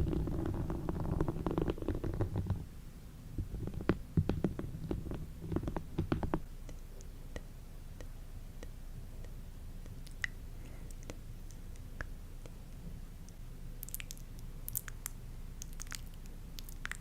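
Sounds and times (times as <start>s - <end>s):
close tapping and scratching: 0.0s - 2.6s, 3.4s - 6.5s.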